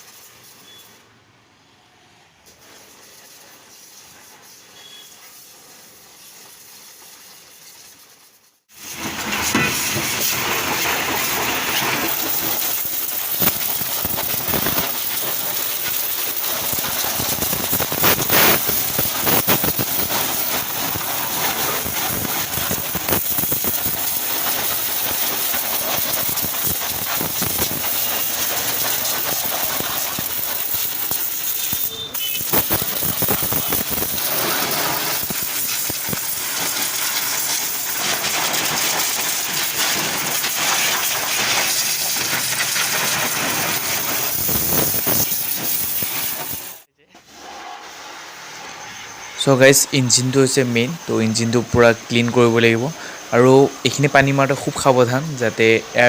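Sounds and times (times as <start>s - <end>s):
pressure washer spraying: 0.0s - 1.0s, 2.4s - 56.0s.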